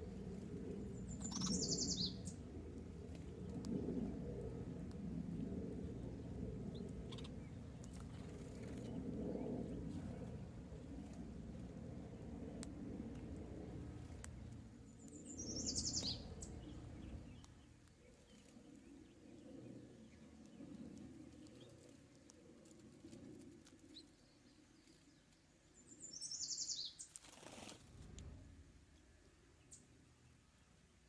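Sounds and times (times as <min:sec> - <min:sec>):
low rumble: 0:00.0 - 0:17.8, 0:27.8 - 0:30.4
bird trilling call: 0:01.1 - 0:02.3.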